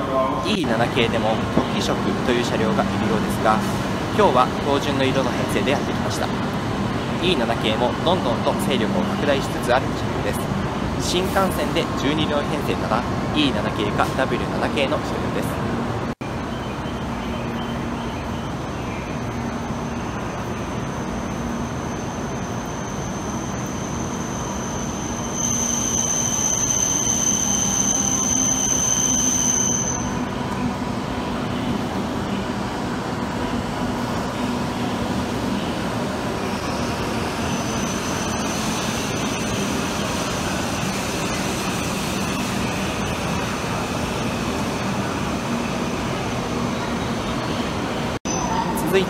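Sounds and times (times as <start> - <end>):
high train whine: 0.0 - 49.0
train rumbling slowly: 0.0 - 49.0.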